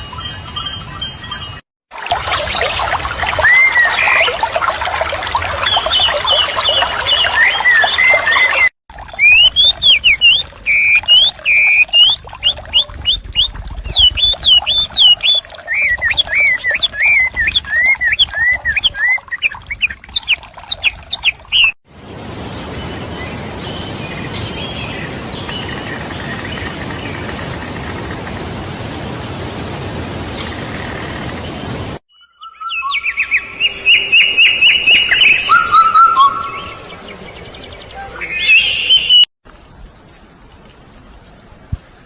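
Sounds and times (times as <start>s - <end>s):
bird singing: 5.7s - 22.6s, 32.1s - 39.3s.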